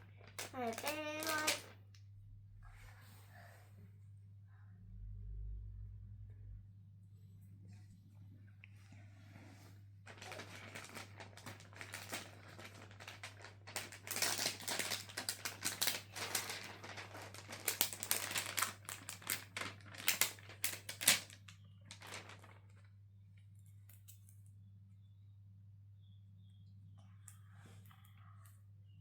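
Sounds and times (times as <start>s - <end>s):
plastic sticker sheets crinkling: 0.0s - 1.8s, 10.1s - 23.0s
low steady hum: 0.0s - 29.0s.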